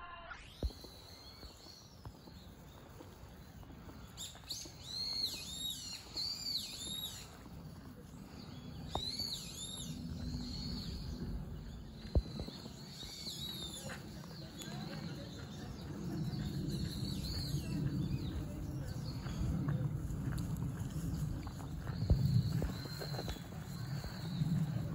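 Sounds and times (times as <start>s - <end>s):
bird chirps: 0.4s - 19.8s
low background rumble: 0.8s - 24.9s.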